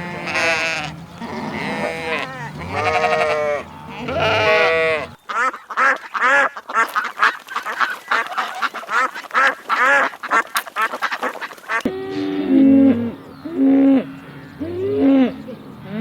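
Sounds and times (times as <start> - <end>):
drawn-out bleat: 0.0 - 5.2
low long animal call: 0.0 - 5.2, 11.9 - 16.0
farm fowl calling rapidly: 0.0 - 11.9.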